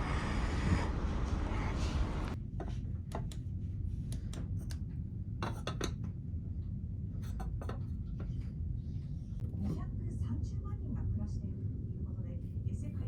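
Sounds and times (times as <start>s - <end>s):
ferry engine rumble: 0.0s - 2.4s
wind noise on microphone: 0.0s - 2.4s.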